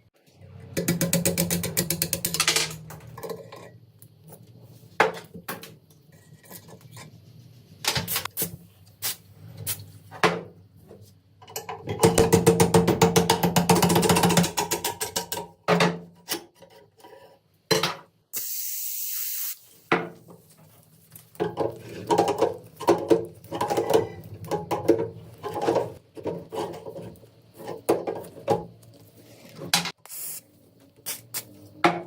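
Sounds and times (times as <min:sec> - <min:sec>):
spray hiss: 0:18.4 - 0:19.9, 0:30.1 - 0:31.5.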